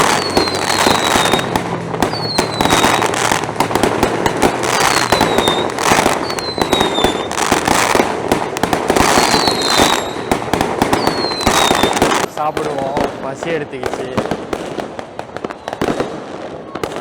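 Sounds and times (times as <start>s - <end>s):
falling firework whistle: 0.0s - 12.8s
fireworks crackling bangs: 0.0s - 17.0s.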